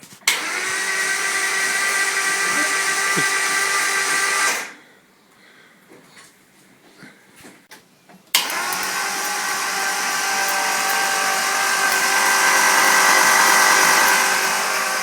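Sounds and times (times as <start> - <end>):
starter motor cranking: 0.2 - 4.8, 8.4 - 15.0.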